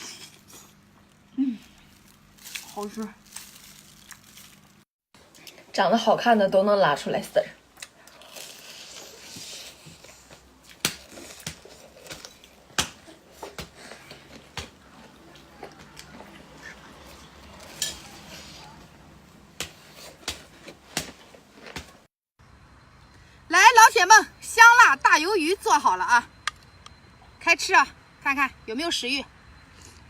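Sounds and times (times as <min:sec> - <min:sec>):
faint chewing: 0:07.8 - 0:19.0.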